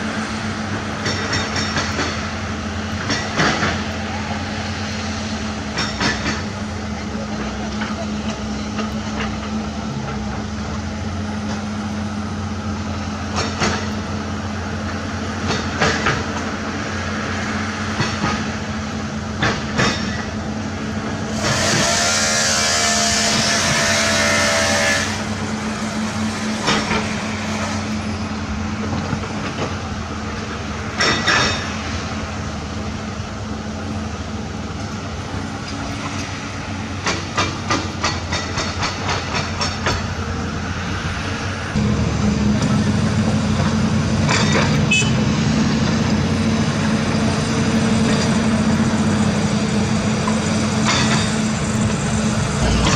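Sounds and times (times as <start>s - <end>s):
heavy diesel machinery running: 0.0s - 52.9s
metal clanks: 52.5s - 52.9s.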